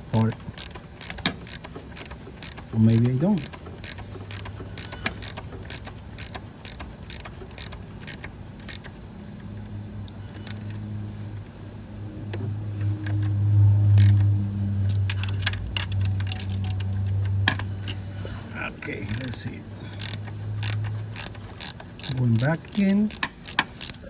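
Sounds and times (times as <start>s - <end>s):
ratchet wrench clicking: 0.0s - 11.0s, 12.8s - 24.0s
low hum: 7.7s - 23.3s.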